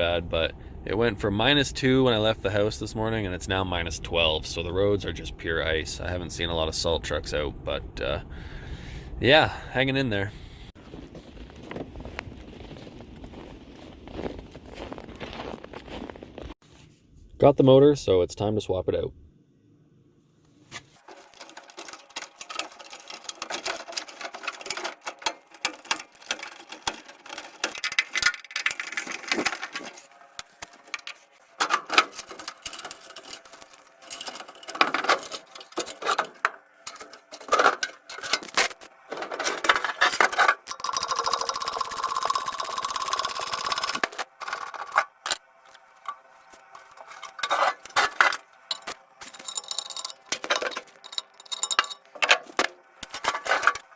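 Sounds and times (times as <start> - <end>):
metal clicks and clinks: 47.0 - 53.9.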